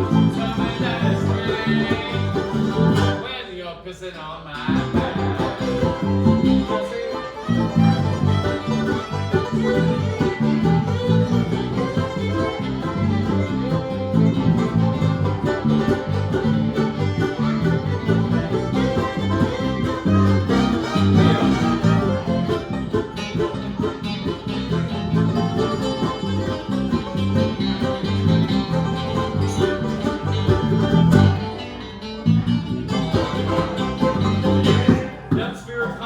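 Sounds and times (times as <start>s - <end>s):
bluegrass band playing: 0.0s - 3.4s, 4.6s - 36.0s.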